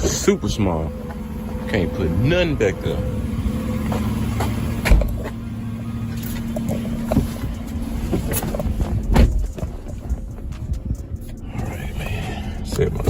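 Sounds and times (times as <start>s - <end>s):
car engine idling: 0.0s - 13.0s
knocks and thumps: 6.4s - 11.0s.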